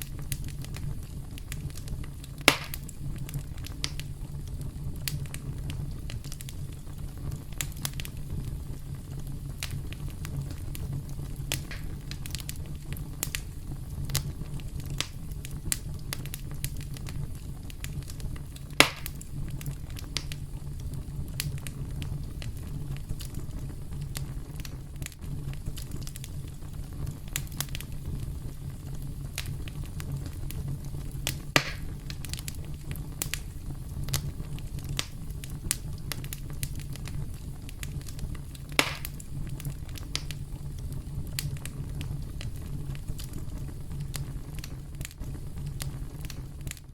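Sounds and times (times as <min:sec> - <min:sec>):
campfire crackling: 0:00.0 - 0:46.9
wood pops: 0:02.5 - 0:02.8, 0:31.6 - 0:31.9, 0:38.8 - 0:39.1.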